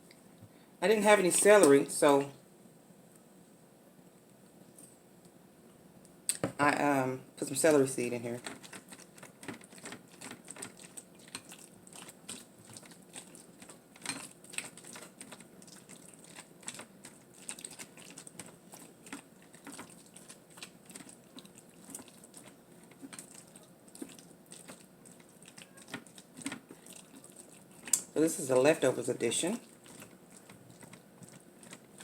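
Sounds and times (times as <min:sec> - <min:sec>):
utensil stirring salad in a bowl: 0:07.5 - 0:32.0.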